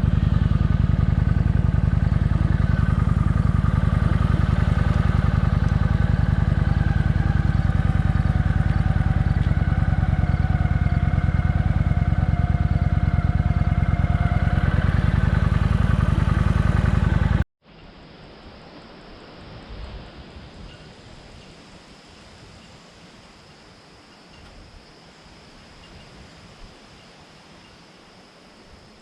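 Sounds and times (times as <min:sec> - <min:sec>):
motorcycle engine running: 0:00.0 - 0:17.5
quiet outdoor hiss: 0:00.0 - 0:29.0.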